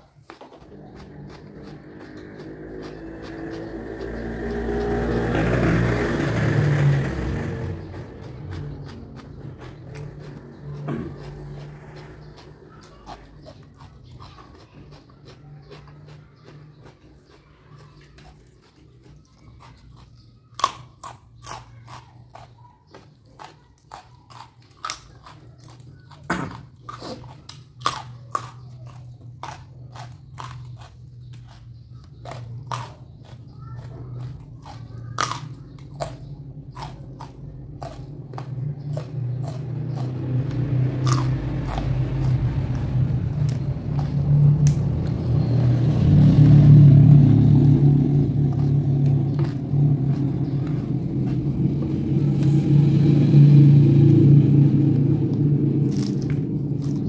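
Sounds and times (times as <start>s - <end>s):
chewing crunchy raw food: 0.0s - 5.4s, 7.5s - 57.0s
low rumble: 36.1s - 57.0s.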